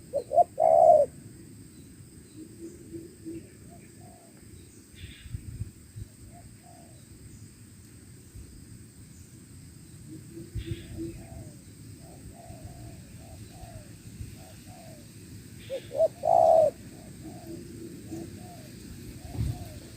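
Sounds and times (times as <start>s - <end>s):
doves cooing: 0.0s - 1.2s, 10.2s - 19.9s
bird chirp: 15.6s - 19.8s.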